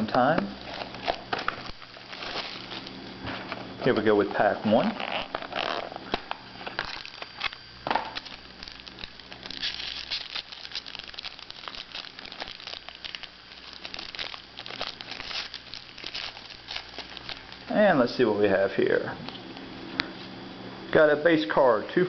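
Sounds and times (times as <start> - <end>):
wrapper tearing: 0.6 - 2.9, 4.7 - 17.7
wrapper crinkling: 0.6 - 3.0, 3.8 - 17.8.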